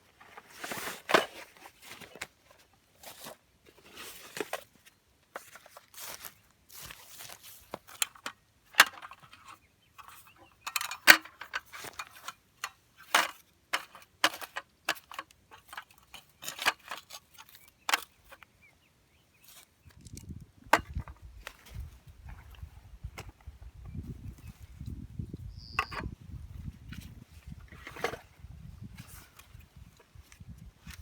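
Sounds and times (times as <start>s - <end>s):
camping gear clinking and knocking: 0.0s - 18.7s, 19.4s - 31.0s
wind rumble on microphone: 19.9s - 31.0s.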